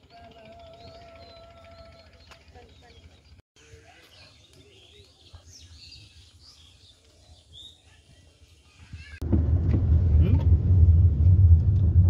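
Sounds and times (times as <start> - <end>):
faint birds chirping: 0.0 - 9.2
low outdoor background noise: 0.0 - 9.6.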